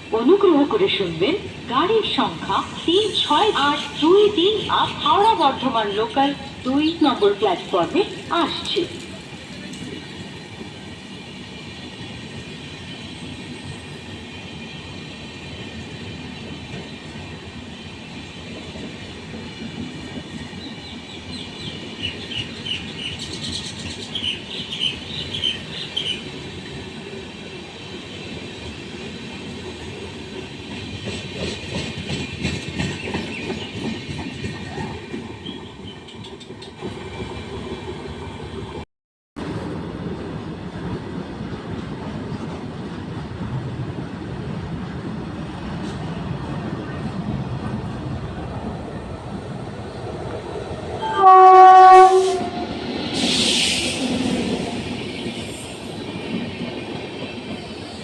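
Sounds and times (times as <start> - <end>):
electric train rumbling: 0.0 - 38.8, 39.4 - 58.0.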